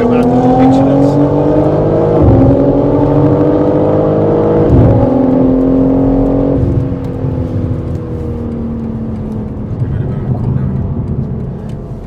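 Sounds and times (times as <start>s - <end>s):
car engine pulling hard: 0.0s - 12.0s.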